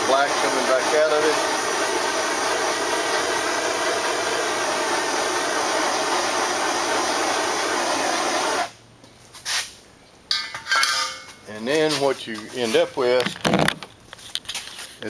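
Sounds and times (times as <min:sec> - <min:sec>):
propane torch hissing: 0:00.0 - 0:08.8.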